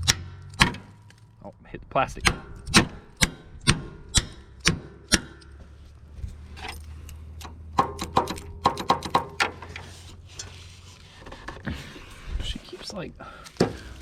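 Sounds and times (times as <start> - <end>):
ratchet knocking on metal: 7.8 - 9.5.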